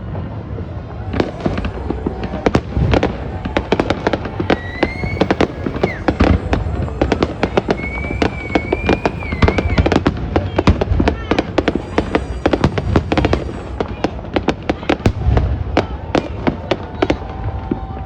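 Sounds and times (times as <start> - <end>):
fireworks bangs and crackles: 0.0 - 18.0
low rumble: 0.7 - 16.1
wavering high whistle: 0.9 - 15.2.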